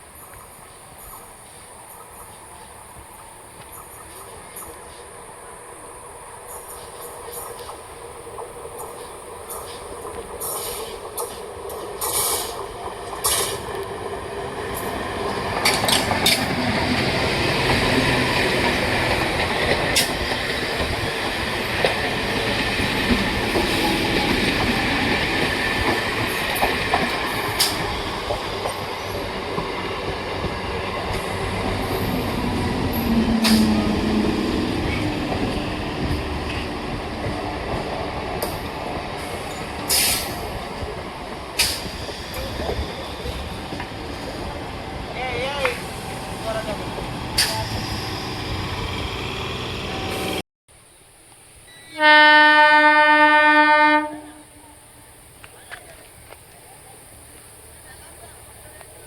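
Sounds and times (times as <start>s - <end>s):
train rumbling past: 0.0s - 59.0s
wheels clacking over rail joints: 6.5s - 47.8s.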